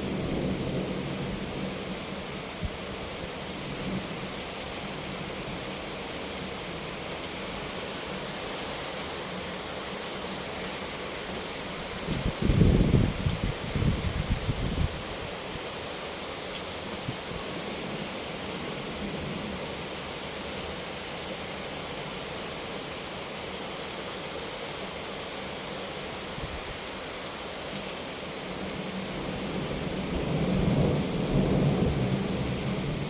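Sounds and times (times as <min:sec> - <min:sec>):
steady rain hiss: 0:00.0 - 0:33.0
thunder rumbling: 0:12.1 - 0:15.0, 0:30.1 - 0:33.0.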